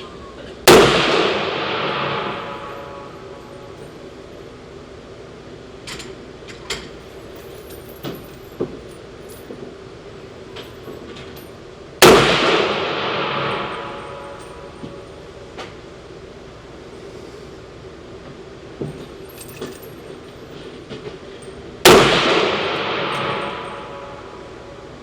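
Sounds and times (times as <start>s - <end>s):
rifle shot with echo: 0.7s - 3.1s, 12.0s - 14.4s, 21.8s - 24.5s
light clicks and clinks: 5.8s - 9.8s, 18.8s - 21.7s.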